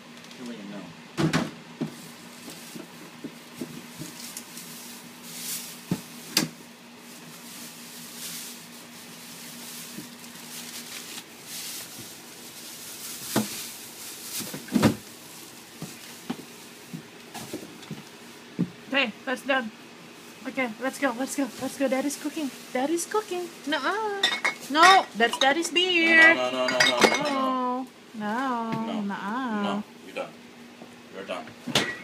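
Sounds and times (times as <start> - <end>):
things clattering in a refrigerator: 1.2 - 4.6, 9.2 - 18.8, 23.7 - 27.5, 31.5 - 32.0.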